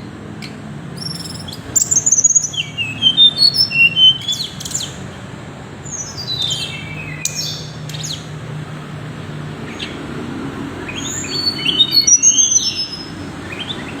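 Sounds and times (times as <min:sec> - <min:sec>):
bird singing whistled notes: 0:00.0 - 0:05.1, 0:05.8 - 0:08.4, 0:10.8 - 0:14.0.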